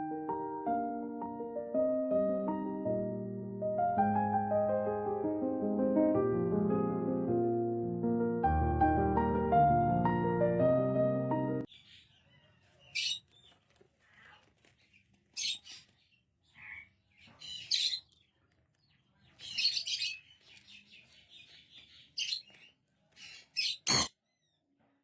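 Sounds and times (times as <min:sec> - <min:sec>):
parrot chirps and squawks: 0:11.9 - 0:13.3, 0:15.4 - 0:15.8, 0:16.6 - 0:18.1, 0:23.2 - 0:24.2.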